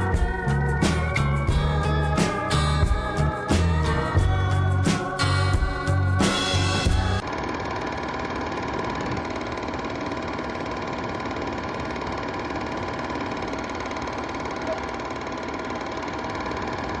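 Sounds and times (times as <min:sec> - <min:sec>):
mechanical whirr with rattle: 0:07.2 - 0:17.0.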